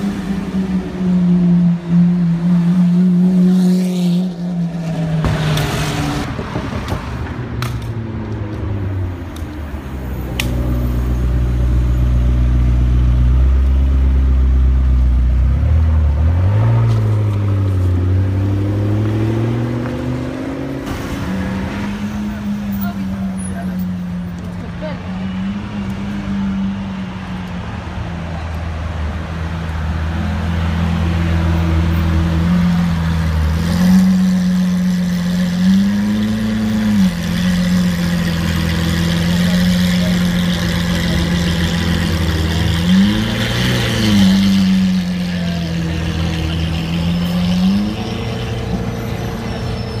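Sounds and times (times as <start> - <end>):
car engine idling: 37.2 - 43.4.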